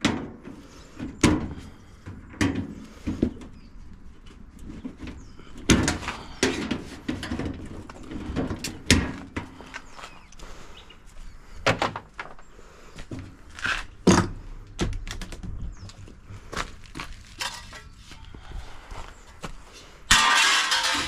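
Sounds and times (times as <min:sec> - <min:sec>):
loud metal scraping: 0:20.1 - 0:21.0
metal parts knocking and clunking: 0:20.1 - 0:21.0.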